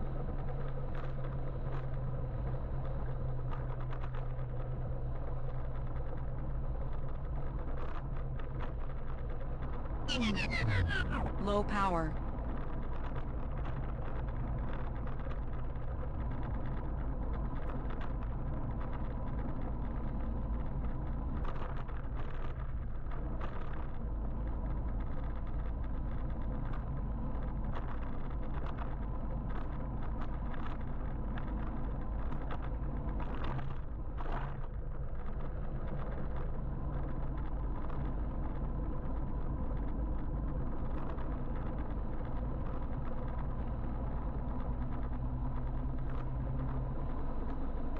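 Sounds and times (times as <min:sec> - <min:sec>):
road noise rumble: 0:00.0 - 0:47.9
passing traffic swishes: 0:10.1 - 0:11.4.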